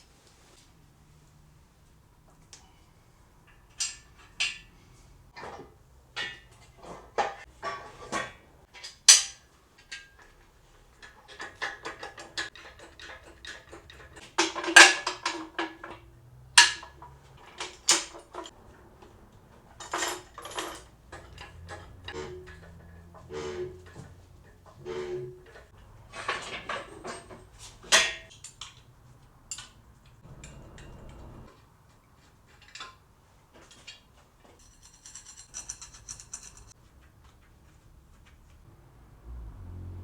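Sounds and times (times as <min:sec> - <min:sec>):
metal clanks and clinks: 0:06.2 - 0:28.9, 0:29.5 - 0:31.5, 0:33.6 - 0:36.8
metal rattling: 0:19.5 - 0:28.6, 0:29.5 - 0:31.5, 0:34.6 - 0:36.8.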